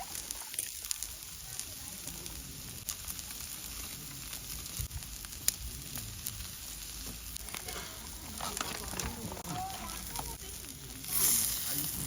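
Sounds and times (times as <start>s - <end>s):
food sizzling over fire: 0.0s - 12.0s.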